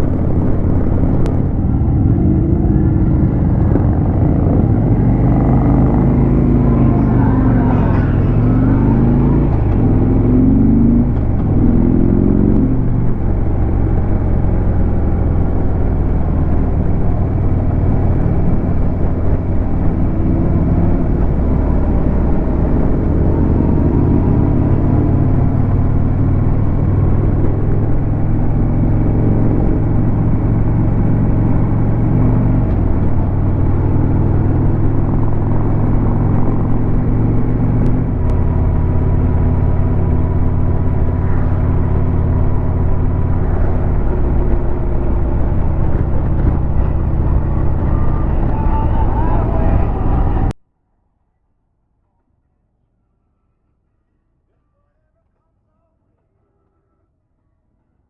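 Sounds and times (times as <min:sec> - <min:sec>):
wind rushing: 0:00.0 - 0:13.7
motorcycle engine at road speed: 0:00.0 - 0:50.6.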